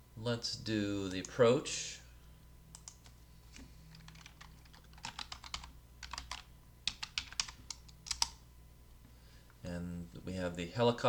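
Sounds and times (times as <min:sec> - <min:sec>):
typing on computer keyboard: 0:02.8 - 0:03.1, 0:03.9 - 0:08.4.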